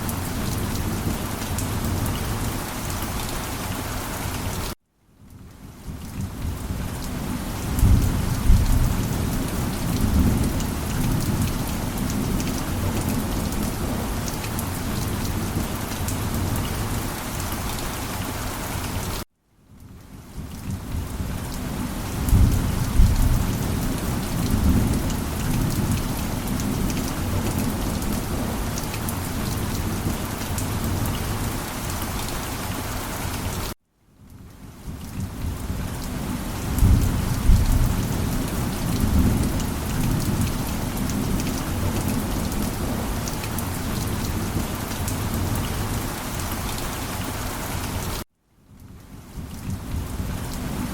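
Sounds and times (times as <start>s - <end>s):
steady rain: 0.0s - 50.9s
low rolling thunder: 6.2s - 14.2s, 20.4s - 31.4s, 35.2s - 46.0s.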